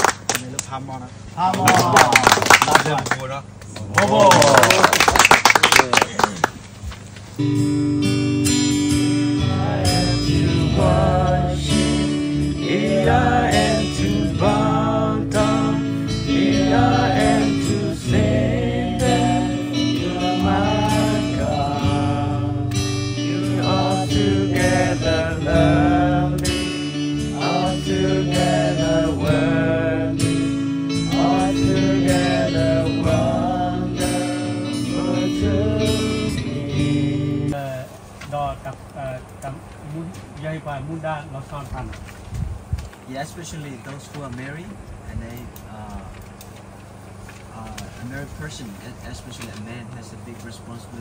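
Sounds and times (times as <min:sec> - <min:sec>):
strummed acoustic guitar: 0:07.4 - 0:37.6
men singing a worship song: 0:09.2 - 0:37.6.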